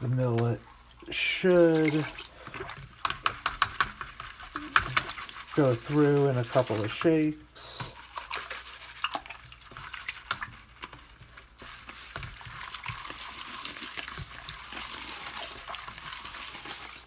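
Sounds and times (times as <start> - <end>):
water trickling through a sieve: 0.0 - 17.0.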